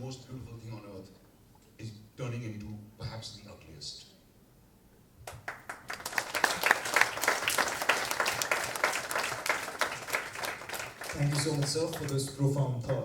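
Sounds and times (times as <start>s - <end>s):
audience applause: 5.5s - 12.4s.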